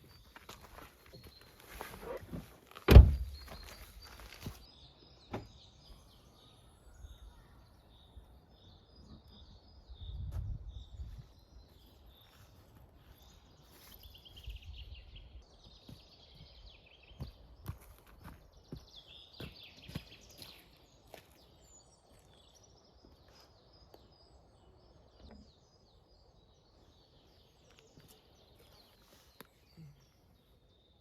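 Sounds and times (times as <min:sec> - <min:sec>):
small birds chirping: 0:00.0 - 0:31.0
loud thump: 0:02.9 - 0:03.4.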